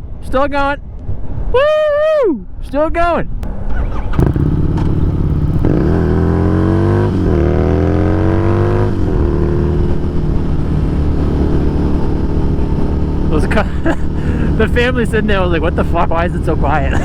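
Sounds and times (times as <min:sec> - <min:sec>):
motorcycle engine accelerating: 0:03.4 - 0:17.0.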